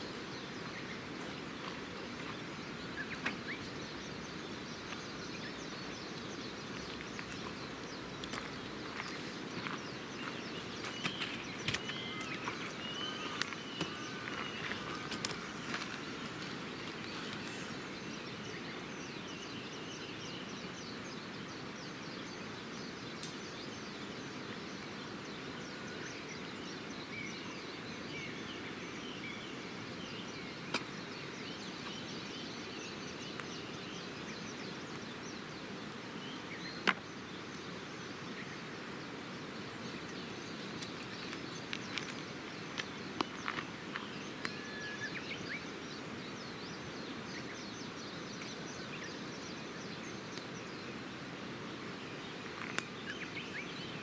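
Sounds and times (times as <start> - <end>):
faint bird chirps: 0.0 - 36.8, 39.7 - 51.0
outdoor background hiss: 0.0 - 54.0.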